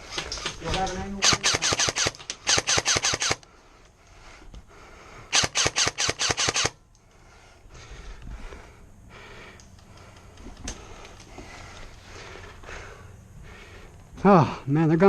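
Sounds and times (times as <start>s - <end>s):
airsoft gun firing: 1.1s - 3.4s, 5.3s - 6.8s.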